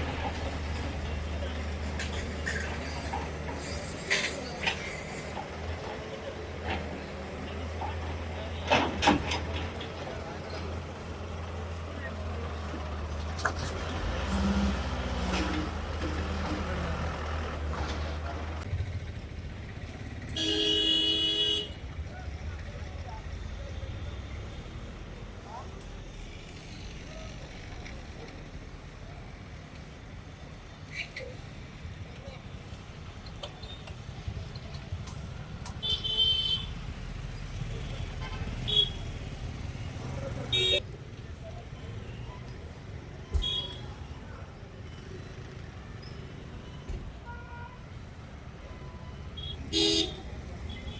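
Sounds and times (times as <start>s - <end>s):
vehicle engine droning: 0.0s - 30.0s
vehicle horn: 20.4s - 21.8s, 49.4s - 50.9s.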